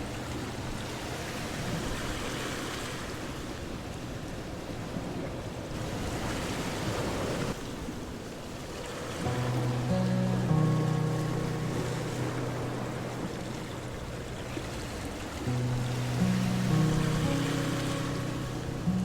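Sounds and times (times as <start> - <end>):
ocean waves washing in: 0.0 - 19.0
soft background music: 9.2 - 19.0.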